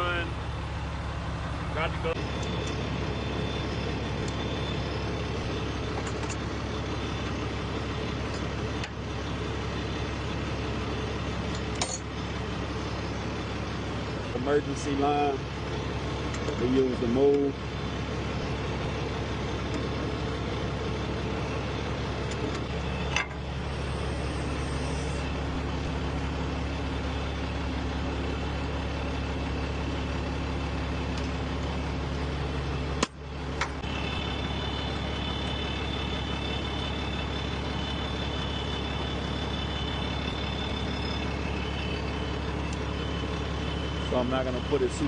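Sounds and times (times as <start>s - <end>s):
truck diesel engine idling: 0.0s - 45.0s.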